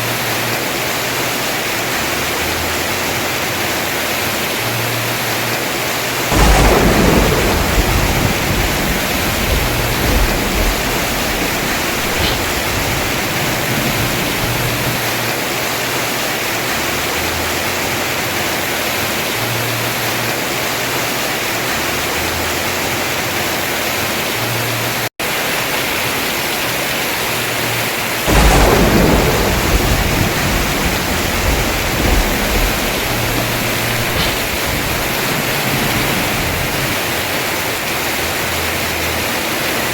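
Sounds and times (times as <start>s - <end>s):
heavy rain on roof: 0.0s - 39.9s
thunder rumbling: 6.2s - 15.6s, 28.0s - 38.8s.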